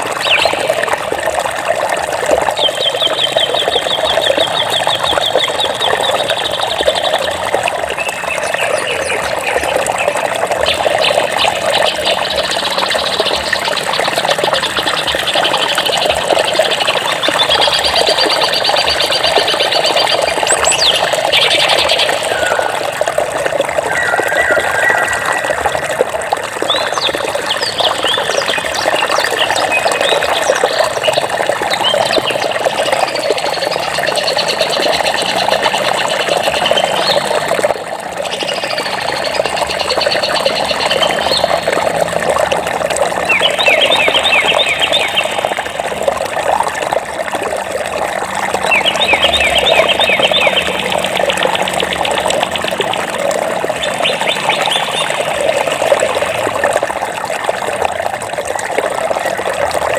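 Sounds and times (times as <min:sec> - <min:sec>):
birds chirping and trilling: 0:00.0 - 0:00.8, 0:02.5 - 0:07.3, 0:08.0 - 0:22.9, 0:23.8 - 0:37.5, 0:38.2 - 0:41.9, 0:43.2 - 0:45.8, 0:48.6 - 0:52.3, 0:53.8 - 0:56.5
flowing water: 0:00.0 - 0:59.9.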